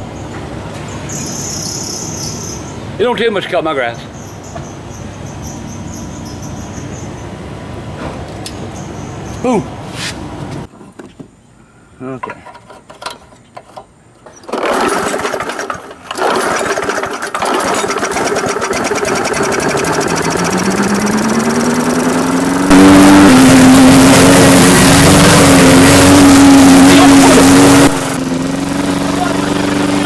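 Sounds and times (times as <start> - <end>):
lawn mower engine running: 14.2 - 30.0.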